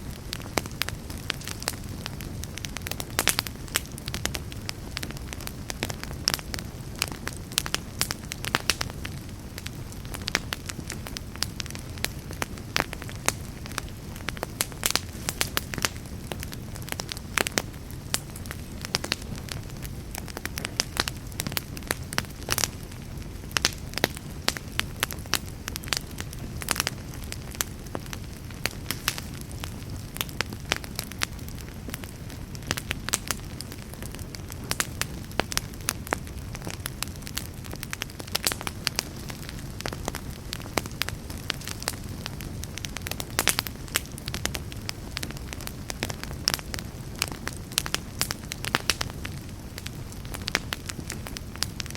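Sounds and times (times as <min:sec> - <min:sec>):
fireplace fire crackling: 0:00.0 - 0:51.9.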